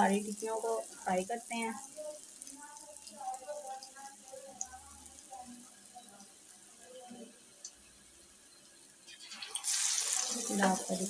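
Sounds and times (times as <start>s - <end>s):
patty sizzling in hot oil: 0.0s - 11.0s
loud sizzling hiss: 7.7s - 11.0s.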